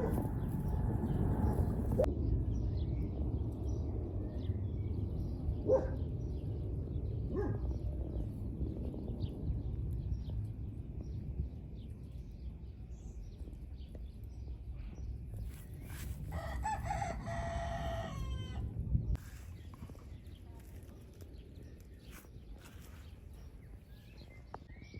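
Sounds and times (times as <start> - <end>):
songbirds chirping: 0.0 - 24.9
wind rumbling: 0.0 - 24.9.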